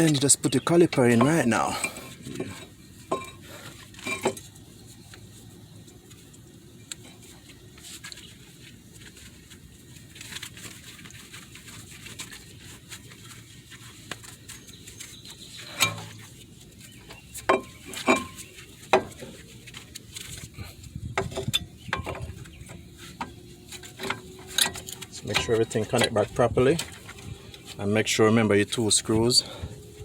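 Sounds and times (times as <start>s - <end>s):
metal clinks and knocks: 1.1s - 4.5s, 17.4s - 19.4s, 21.2s - 27.6s.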